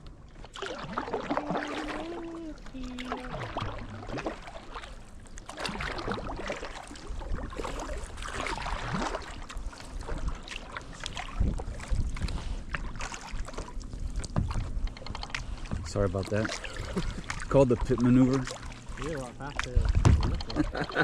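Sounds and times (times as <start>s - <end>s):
paddle splashing water: 0.0s - 21.0s
wind on microphone: 7.1s - 15.9s, 19.7s - 21.0s
low thumps: 19.6s - 21.0s.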